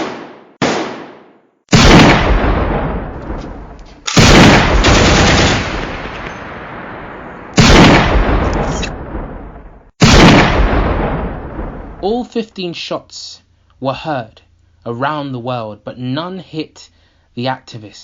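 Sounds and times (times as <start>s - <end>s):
loud gunshots with echo: 0.0s - 12.0s.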